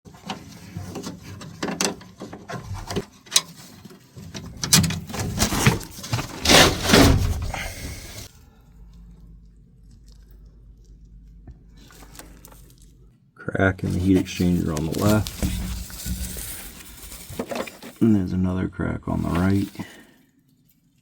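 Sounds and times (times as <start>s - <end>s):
handling noise rubbing and scraping: 0.1s - 8.4s, 13.8s - 18.3s, 19.1s - 20.1s
low steady hum: 4.2s - 19.6s.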